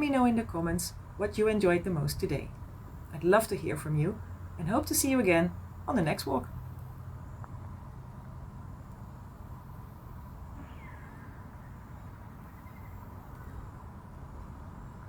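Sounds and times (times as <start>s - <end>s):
low outdoor rumble: 0.0s - 15.0s
faint bird call: 10.6s - 13.7s.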